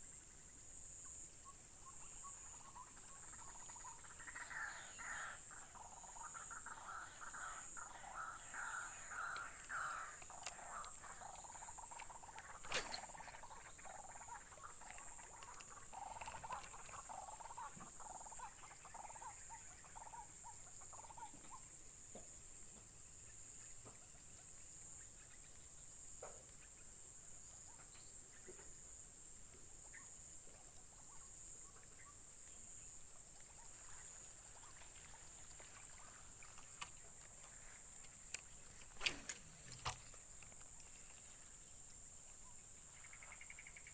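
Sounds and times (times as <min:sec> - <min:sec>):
frogs calling: 0:01.0 - 0:21.8, 0:29.7 - 0:43.9.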